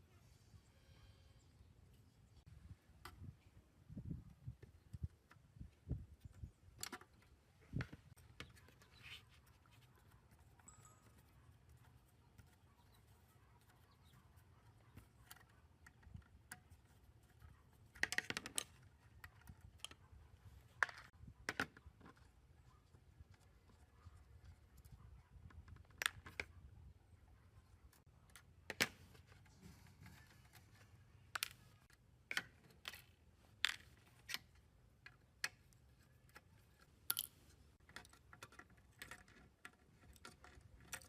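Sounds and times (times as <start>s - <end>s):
clatter of small parts: 30.0s - 41.0s.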